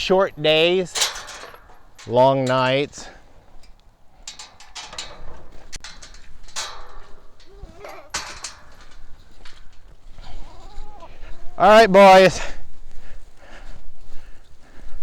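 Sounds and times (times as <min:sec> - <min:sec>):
knocks and clicks: 0:03.6 - 0:09.9
faint goat bleats: 0:07.4 - 0:08.4, 0:10.2 - 0:12.5.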